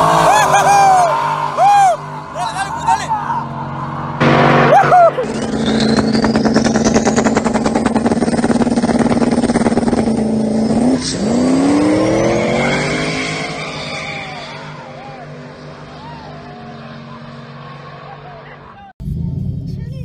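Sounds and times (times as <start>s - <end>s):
high whine: 0.0s - 15.5s
engines revving and accelerating: 0.0s - 19.7s.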